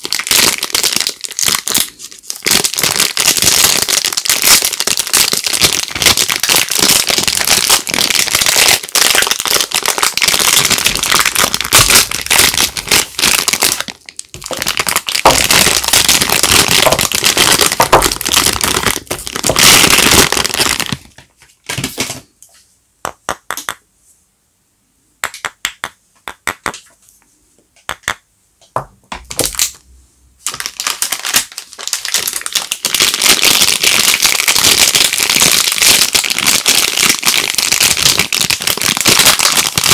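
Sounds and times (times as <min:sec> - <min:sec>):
wrappers crinkling and tearing: 0:00.0 - 0:22.0, 0:30.4 - 0:39.9.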